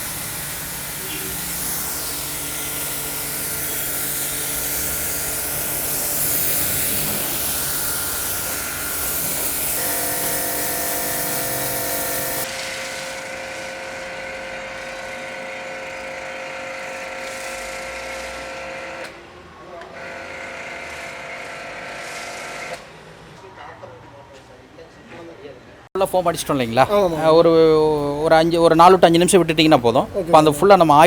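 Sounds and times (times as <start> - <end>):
water spray hissing: 0.0 - 13.2
pressure washer motor whine: 0.0 - 19.1.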